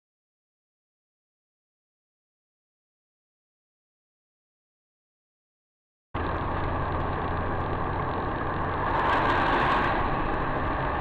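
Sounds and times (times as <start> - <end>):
car road and engine noise: 6.2 - 11.0.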